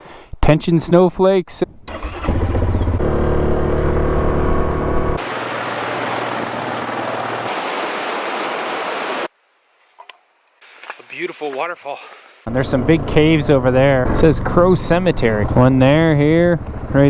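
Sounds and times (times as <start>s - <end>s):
atv engine running: 1.9s - 7.8s, 14.0s - 17.0s.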